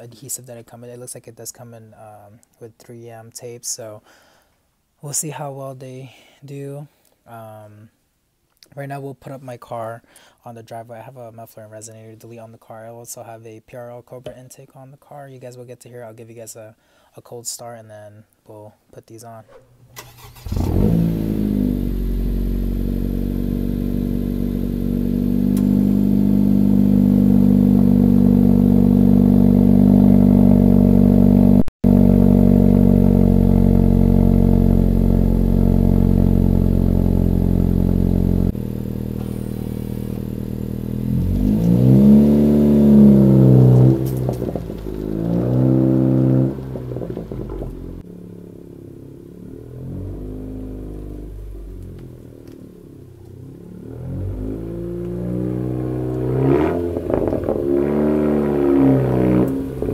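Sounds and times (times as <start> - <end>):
car engine starting: 19.5 - 59.9
engine revving: 20.0 - 48.0, 49.4 - 52.6, 53.4 - 59.9.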